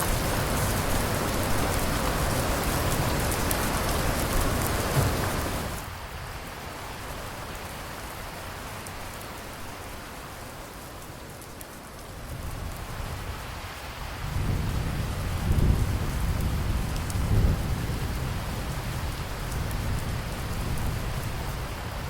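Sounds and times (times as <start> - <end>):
low rolling thunder: 0.0 - 5.9, 14.1 - 22.0
steady rain: 0.0 - 22.0.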